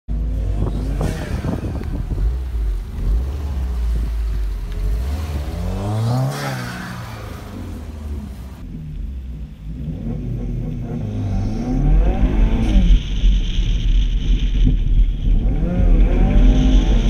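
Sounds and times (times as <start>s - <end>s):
car accelerating past: 0.3s - 8.6s, 9.8s - 13.2s.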